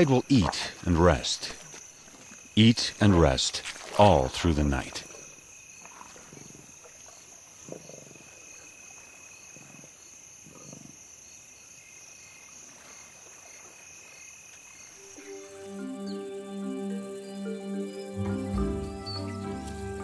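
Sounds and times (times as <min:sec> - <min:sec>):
crickets and insects chirping: 0:00.0 - 0:20.0
pulsing chirp: 0:15.0 - 0:19.6.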